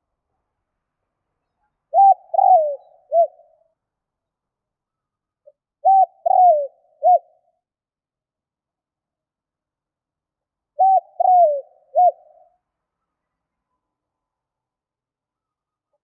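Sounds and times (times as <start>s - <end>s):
dove cooing: 1.9s - 3.6s, 5.8s - 7.4s, 10.8s - 12.5s.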